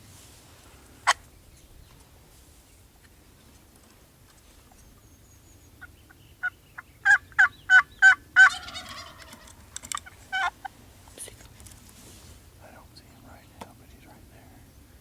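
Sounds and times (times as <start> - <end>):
turkey gobbling: 5.8 - 10.8.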